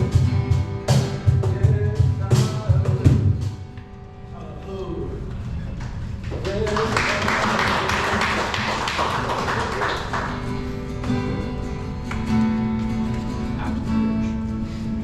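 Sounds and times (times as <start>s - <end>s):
acoustic guitar plucking: 0.0s - 4.3s, 10.0s - 15.0s.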